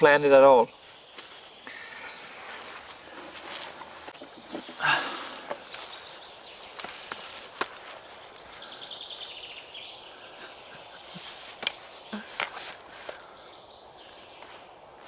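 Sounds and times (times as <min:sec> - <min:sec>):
birdsong trills and chirps: 0:00.0 - 0:15.0.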